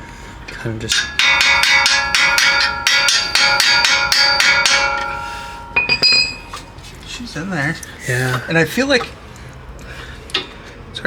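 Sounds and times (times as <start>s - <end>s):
metal ringing: 0.0s - 7.8s.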